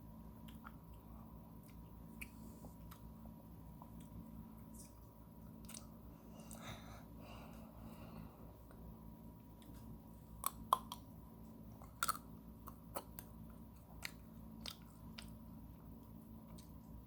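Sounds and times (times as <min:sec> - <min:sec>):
biting and chewing ice cream: 0:09.6 - 0:17.0.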